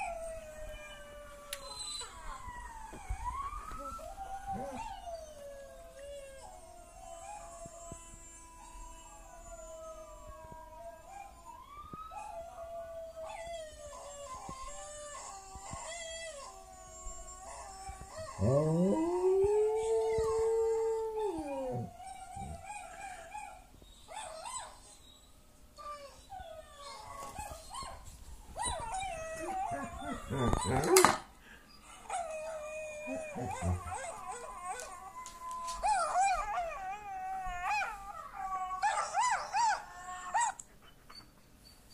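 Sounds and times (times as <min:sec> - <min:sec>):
dog howling: 0:12.1 - 0:23.6, 0:28.7 - 0:31.2, 0:32.1 - 0:40.6.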